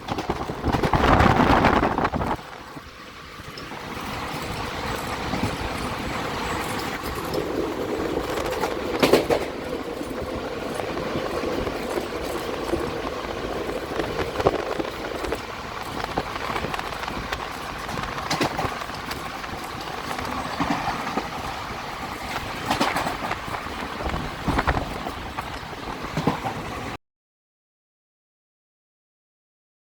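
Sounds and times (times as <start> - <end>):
clacks over rail joints: 0.0 - 27.0
train wheels rumbling on rail: 0.0 - 27.0.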